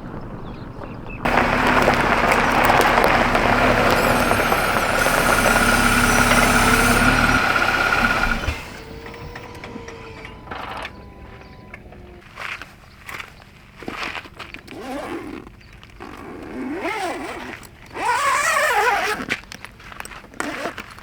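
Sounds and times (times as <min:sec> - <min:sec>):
vehicle engine running: 0:00.2 - 0:12.9.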